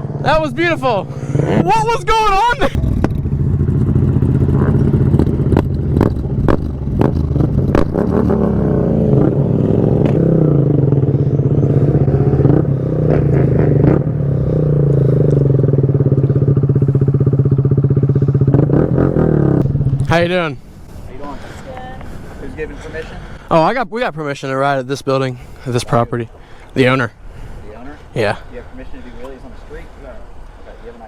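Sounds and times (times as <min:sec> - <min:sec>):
motorcycle engine idling: 0:02.8 - 0:07.8, 0:10.3 - 0:13.4, 0:14.1 - 0:23.4.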